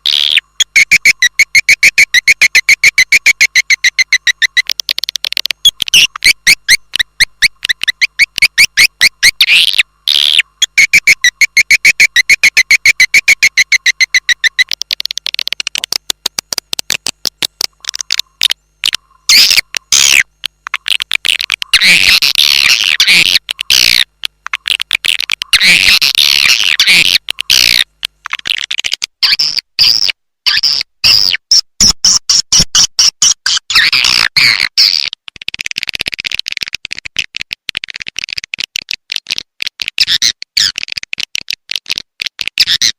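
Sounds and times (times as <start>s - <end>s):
swiftlet chirps and twittering: 0.0s - 16.0s, 17.9s - 27.9s.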